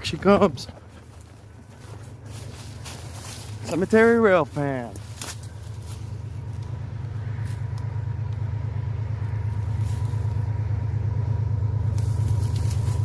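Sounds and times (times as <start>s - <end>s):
diesel locomotive engine rumble: 0.0s - 13.0s.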